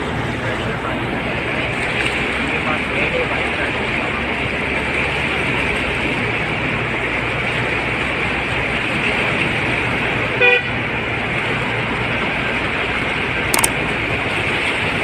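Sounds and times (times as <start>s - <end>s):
street traffic noise: 0.0s - 15.0s
vehicle horn toot: 10.4s - 10.7s.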